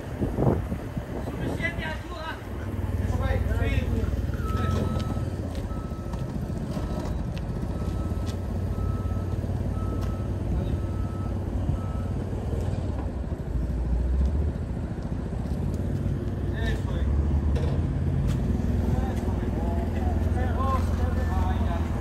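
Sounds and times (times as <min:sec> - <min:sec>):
low idling engine: 0:00.0 - 0:22.0
vehicle backup alarm beeping: 0:03.7 - 0:12.4.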